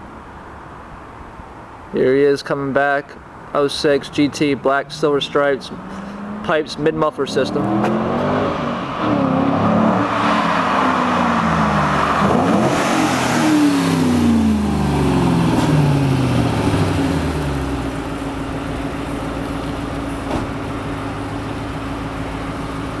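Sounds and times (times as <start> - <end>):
car engine slowing and idling: 3.2 - 23.0.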